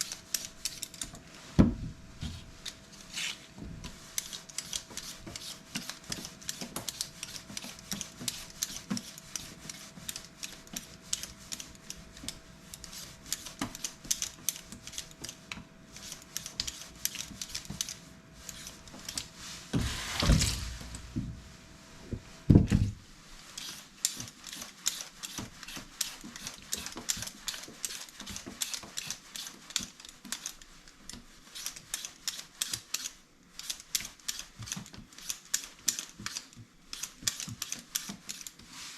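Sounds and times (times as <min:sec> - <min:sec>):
heavy thump: 0:19.8 - 0:21.4, 0:22.1 - 0:23.0.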